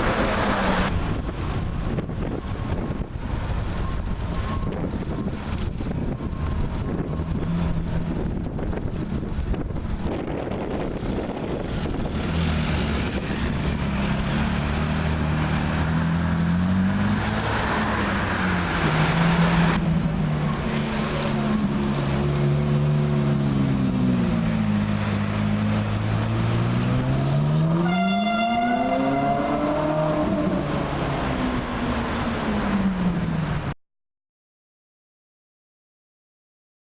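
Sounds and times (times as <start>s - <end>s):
engine revving up: 28.6s - 31.2s.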